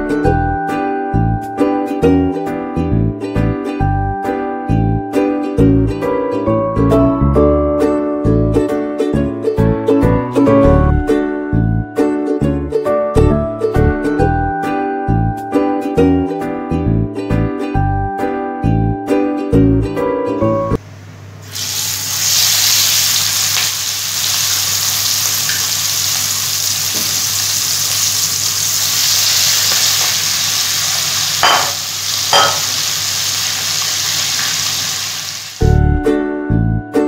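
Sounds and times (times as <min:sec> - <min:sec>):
ukulele music: 0:00.0 - 0:20.8, 0:35.6 - 0:37.0
food sizzling in hot oil: 0:21.4 - 0:35.7.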